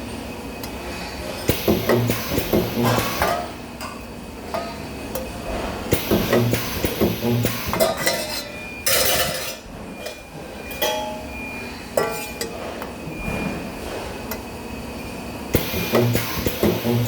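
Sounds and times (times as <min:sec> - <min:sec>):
metal parts clanking: 0:07.7 - 0:11.2.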